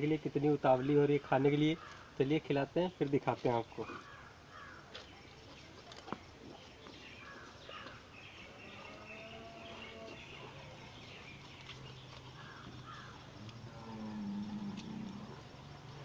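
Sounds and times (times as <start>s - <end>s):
small birds chirping: 0.0s - 16.0s
faint low hum: 3.9s - 16.0s.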